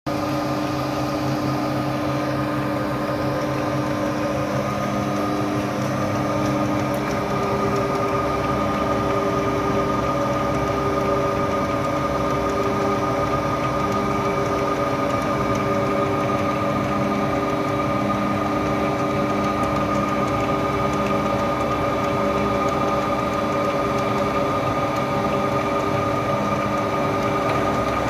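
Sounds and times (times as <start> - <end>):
wood planer motors humming: 0.1 - 28.0.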